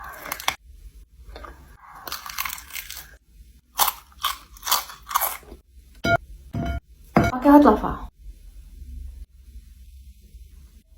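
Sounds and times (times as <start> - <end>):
crunching of fried chicken skin: 0.0 - 0.6, 2.0 - 5.5.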